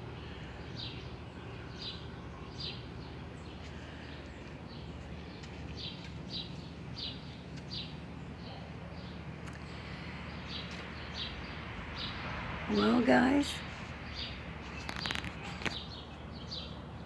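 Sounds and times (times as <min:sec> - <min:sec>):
low background hum: 0:00.0 - 0:12.0
bird chirping: 0:00.0 - 0:17.0.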